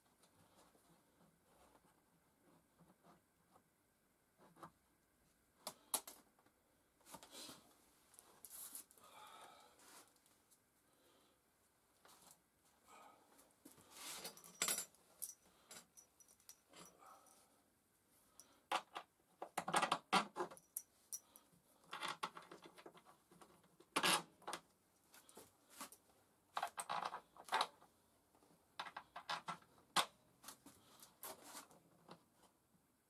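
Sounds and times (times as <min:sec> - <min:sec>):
scraping and rustling handling noises: 0:30.4 - 0:32.6.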